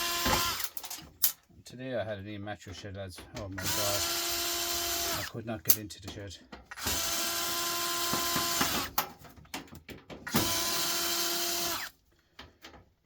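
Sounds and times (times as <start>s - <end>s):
cordless power drill running: 0.0s - 0.8s, 3.6s - 5.3s, 6.8s - 9.0s, 10.3s - 11.9s.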